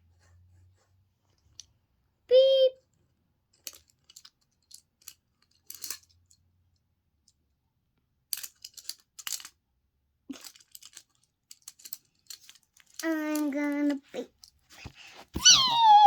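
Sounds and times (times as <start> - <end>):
plastic toys clicking: 3.5 - 6.4, 8.3 - 9.6, 10.3 - 16.0
plastic toys scraping: 10.3 - 16.0.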